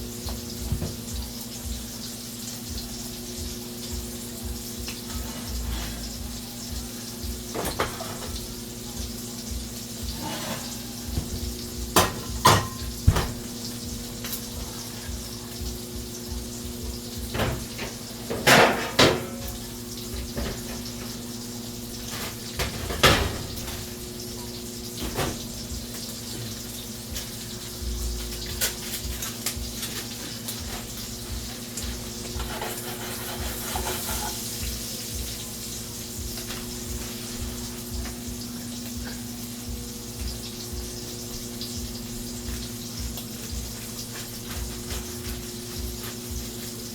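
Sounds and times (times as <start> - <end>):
tap running into sink: 0.2 - 1.2, 7.5 - 8.5, 10.0 - 14.4, 17.2 - 21.3, 24.9 - 27.4
dishes and utensils clattering: 4.8 - 6.3, 7.4 - 8.6, 9.9 - 15.2, 17.3 - 27.5, 28.2 - 34.7.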